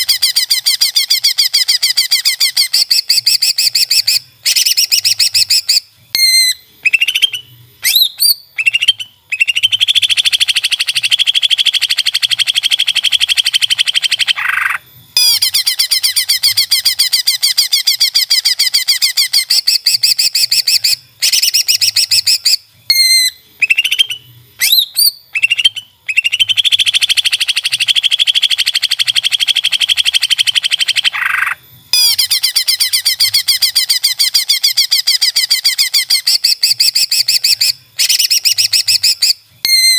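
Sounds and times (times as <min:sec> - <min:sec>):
bird chattering trills: 0:00.0 - 0:39.9
bird rising whistled notes: 0:00.1 - 0:39.9.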